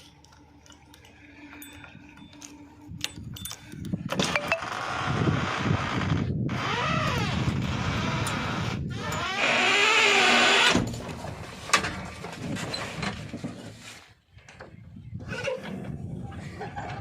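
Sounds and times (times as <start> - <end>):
engine whine: 0.0 - 8.9.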